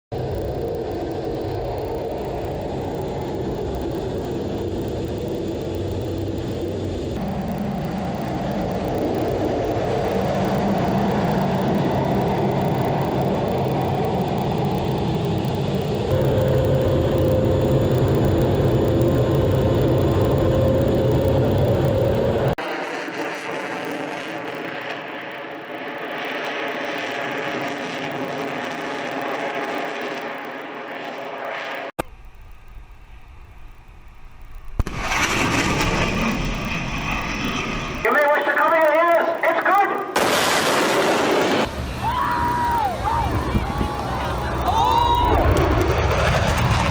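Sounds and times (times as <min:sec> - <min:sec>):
jet engines rumbling: 0:00.1 - 0:46.9
rushing jet sound: 0:34.7 - 0:38.1.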